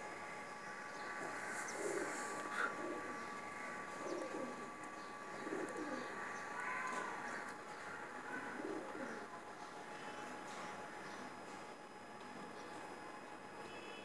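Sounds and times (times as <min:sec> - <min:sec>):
faint steady tone: 0:00.0 - 0:14.0
bird calling: 0:00.8 - 0:09.2.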